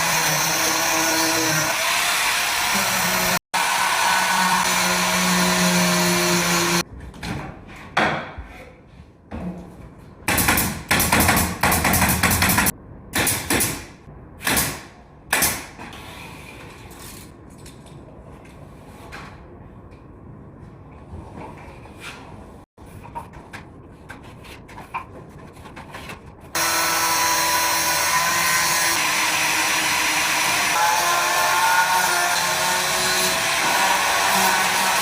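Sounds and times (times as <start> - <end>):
power tool running: 26.6 - 35.0.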